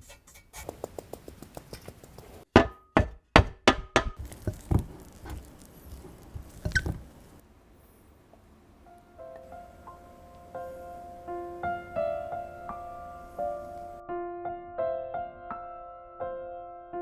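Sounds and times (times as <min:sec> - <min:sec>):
knocks on hard kitchen objects: 0:02.5 - 0:05.4.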